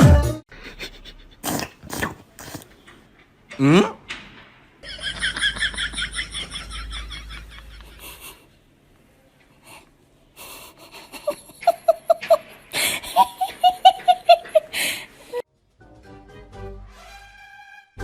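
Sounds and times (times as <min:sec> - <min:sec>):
wheezy gasps: 0:00.5 - 0:02.8, 0:14.7 - 0:15.4
person laughing high-pitched: 0:10.9 - 0:15.4.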